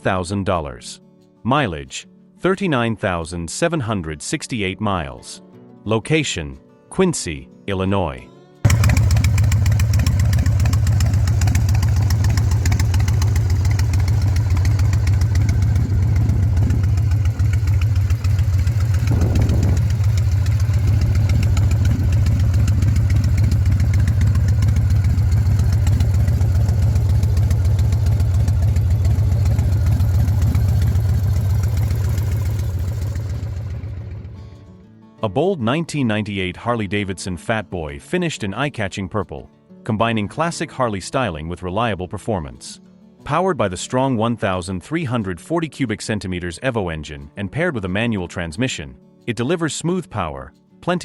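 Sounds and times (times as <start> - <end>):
motorcycle engine idling: 8.7 - 34.6.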